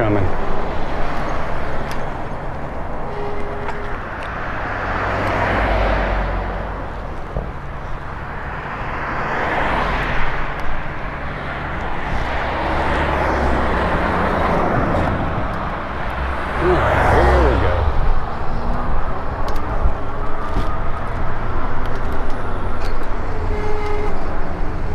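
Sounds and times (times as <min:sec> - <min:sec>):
cars passing: 0:00.0 - 0:24.9
steady low rumble: 0:14.8 - 0:20.3.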